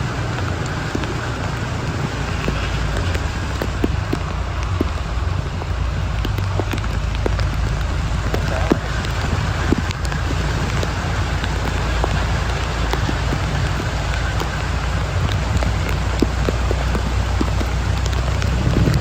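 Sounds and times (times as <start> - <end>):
heavy rain falling: 0.0 - 19.0
low rumble: 0.0 - 19.0
sharp raindrops ticking: 0.0 - 19.0.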